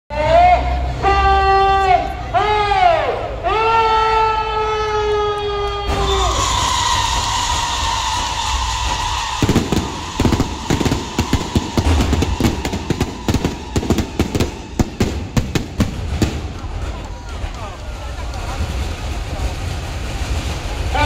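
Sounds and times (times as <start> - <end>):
hiss with falling whistle: 5.9 - 15.4
firecrackers cracking: 5.9 - 21.0.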